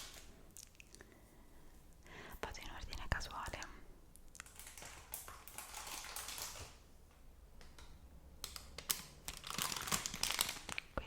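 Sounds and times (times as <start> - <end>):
crinkling: 3.5 - 6.9, 7.8 - 11.0.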